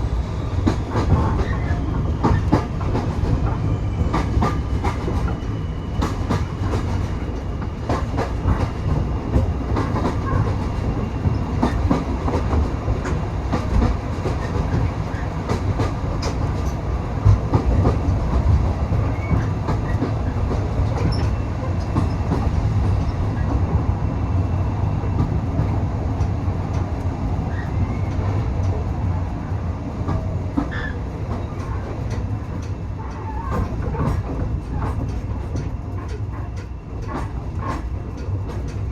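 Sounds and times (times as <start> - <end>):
train rumbling on track: 0.0 - 38.9
wheels clicking over rail joints: 30.0 - 38.9.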